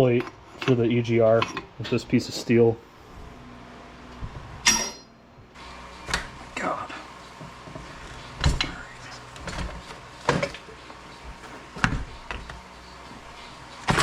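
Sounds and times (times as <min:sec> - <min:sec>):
tools and metal parts clunking: 0:00.0 - 0:02.7, 0:04.6 - 0:05.2, 0:07.3 - 0:14.0.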